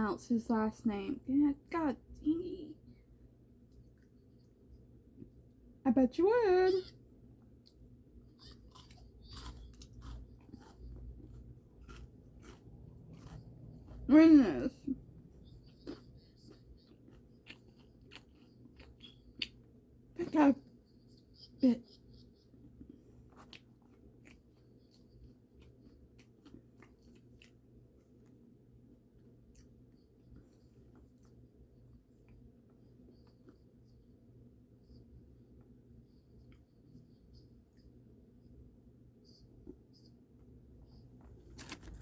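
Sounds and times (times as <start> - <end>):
low room hum: 0.0 - 42.0
person chewing crunchy food: 7.6 - 14.1, 15.0 - 19.8, 22.5 - 28.5, 41.2 - 42.0.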